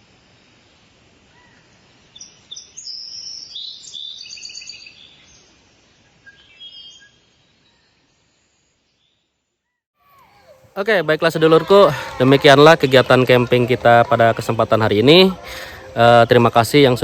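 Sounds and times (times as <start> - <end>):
faint outdoor background: 0.0 - 17.0
songbirds chirping and singing: 1.4 - 5.6, 10.3 - 17.0.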